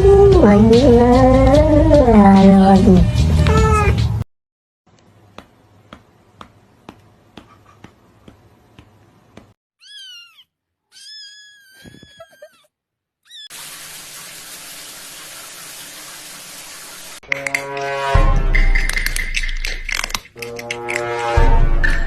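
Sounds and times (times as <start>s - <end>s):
cat meowing: 3.4s - 4.1s, 9.8s - 12.7s.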